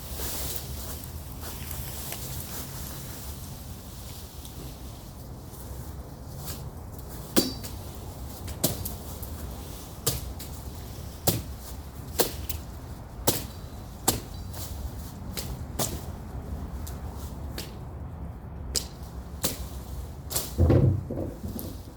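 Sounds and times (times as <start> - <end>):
machete chopping brush: 11.2 - 12.6, 13.3 - 14.4, 18.8 - 20.6.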